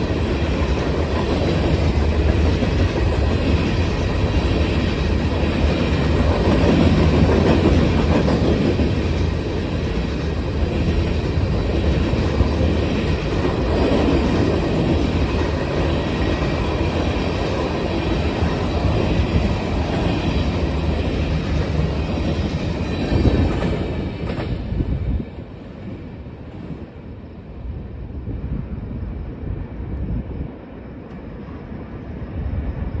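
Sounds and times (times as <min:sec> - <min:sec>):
freight train wheels clattering: 0:00.0 - 0:24.8.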